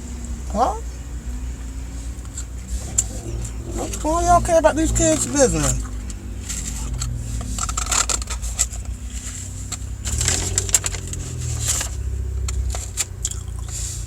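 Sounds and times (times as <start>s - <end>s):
car interior rumble: 0.0s - 14.0s
handling clicks and scrapes: 1.9s - 14.0s.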